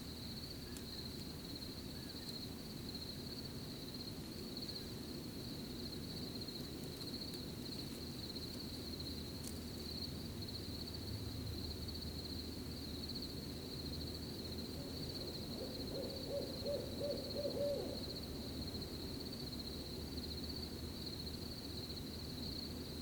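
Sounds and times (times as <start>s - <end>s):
crickets chirping: 0.0s - 23.0s
owl hooting: 14.8s - 18.2s.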